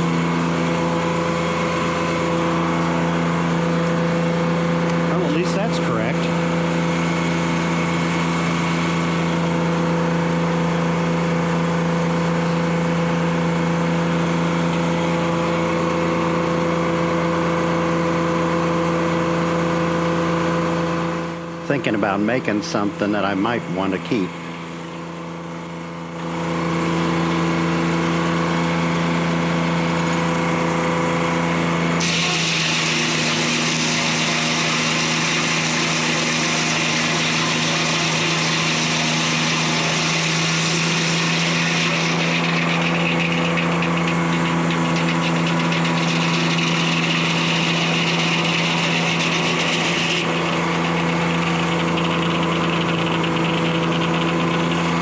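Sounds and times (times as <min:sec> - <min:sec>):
two-stroke diesel engine running: 0:00.0 - 0:55.0
saw blade hissing through log: 0:31.9 - 0:51.7.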